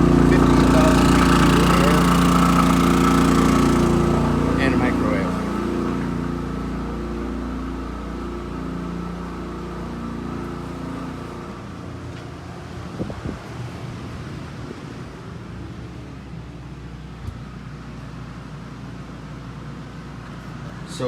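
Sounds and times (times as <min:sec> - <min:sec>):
generator engine running: 0:00.0 - 0:21.0.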